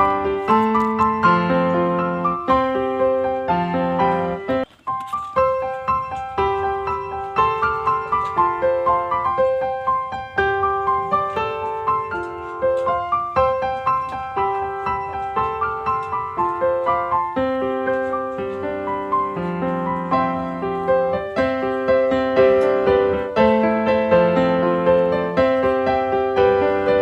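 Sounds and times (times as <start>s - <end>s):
gentle piano melody: 0.0s - 27.0s.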